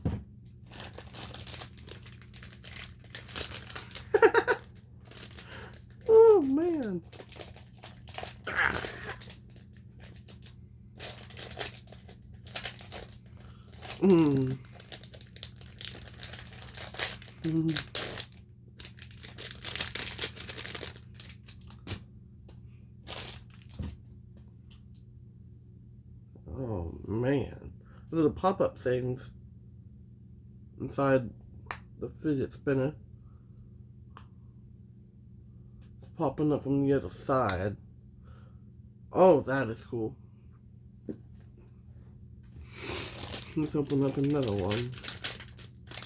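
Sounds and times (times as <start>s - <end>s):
plastic packaging crinkling: 0.0s - 22.0s, 23.0s - 24.0s, 43.0s - 46.0s.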